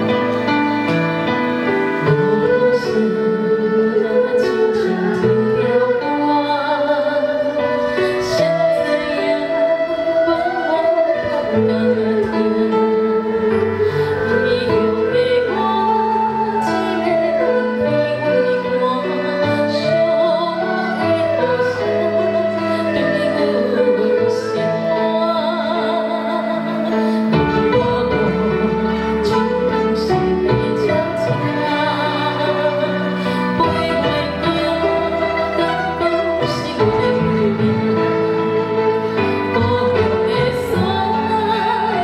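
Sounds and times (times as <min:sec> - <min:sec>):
traditional instrument ensemble: 0:00.0 - 0:42.0
woman singing with vibrato: 0:01.6 - 0:42.0.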